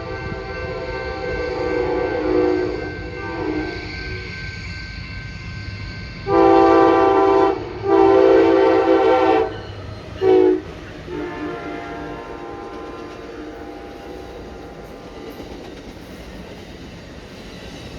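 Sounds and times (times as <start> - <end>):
locomotive air horn blasts: 0.0 - 3.8, 6.3 - 9.6, 10.2 - 14.8
train rumbling: 0.0 - 17.9.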